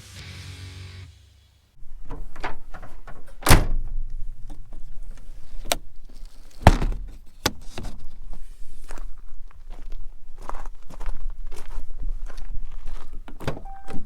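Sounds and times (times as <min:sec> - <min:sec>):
sharp thuds and clunks: 0:02.0 - 0:05.9, 0:06.5 - 0:08.2
small knocks and rattles: 0:02.0 - 0:08.2.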